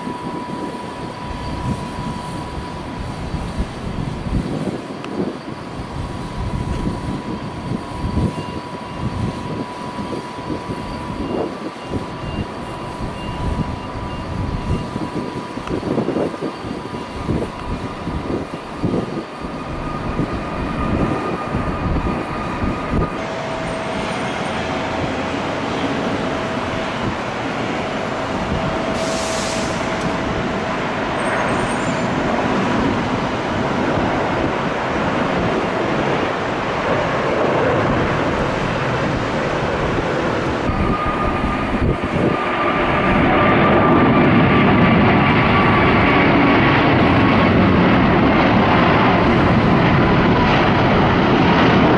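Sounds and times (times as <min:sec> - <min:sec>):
jet engines running: 0:00.0 - 0:51.9.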